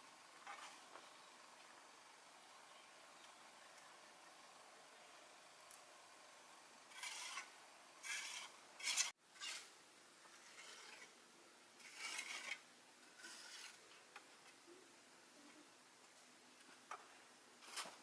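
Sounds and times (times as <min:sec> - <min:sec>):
tool scraping a surface: 0:06.9 - 0:09.7, 0:10.3 - 0:11.2, 0:11.8 - 0:13.8, 0:17.6 - 0:18.0.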